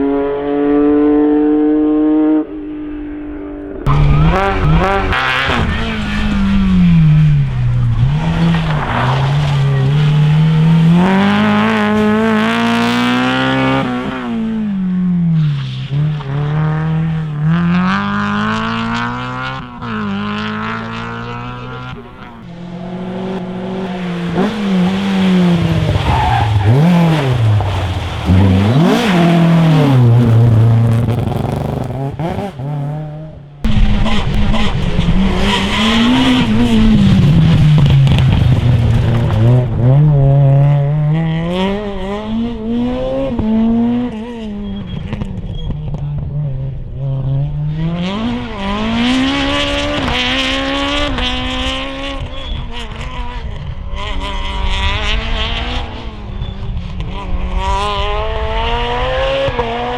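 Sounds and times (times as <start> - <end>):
rally car engines revving: 0.0 - 59.9
tyres squealing and skidding: 3.5 - 13.8, 23.7 - 32.4, 33.7 - 40.0, 44.4 - 46.2, 55.6 - 57.2.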